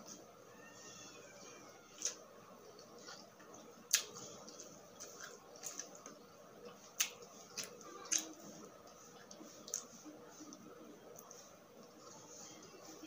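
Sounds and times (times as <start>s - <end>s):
chewing and mouth sounds: 2.0s - 9.9s.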